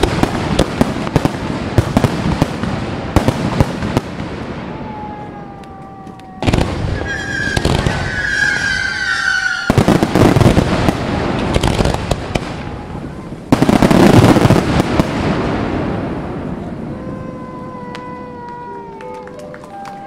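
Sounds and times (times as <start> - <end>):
firework bangs and crackling: 0.0 - 20.0
falling firework whistle: 4.4 - 10.6.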